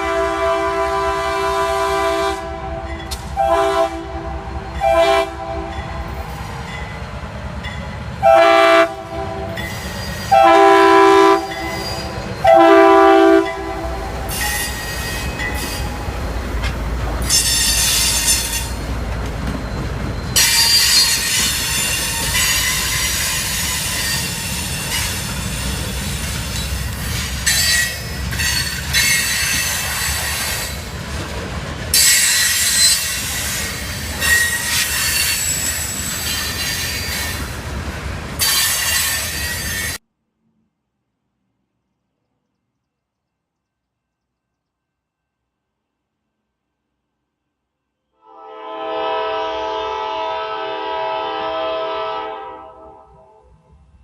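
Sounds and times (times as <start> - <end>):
locomotive air horn blasts: 0.0 - 6.2, 8.2 - 9.7, 10.3 - 14.5, 48.2 - 53.4
train wheels clacking on rails: 2.8 - 3.5, 13.4 - 40.0
metallic wheel squeal: 9.6 - 10.4, 11.4 - 12.6, 14.3 - 16.0, 19.5 - 30.9, 32.0 - 37.4.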